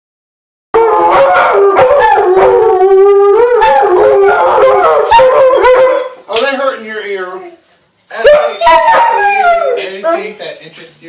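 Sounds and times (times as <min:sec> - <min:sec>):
dogs howling: 0:00.8 - 0:06.2, 0:07.3 - 0:10.5.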